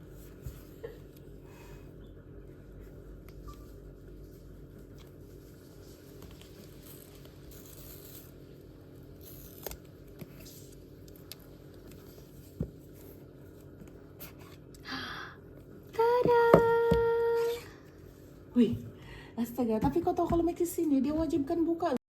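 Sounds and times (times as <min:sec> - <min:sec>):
cardboard and plastic rustling: 0:04.8 - 0:08.5.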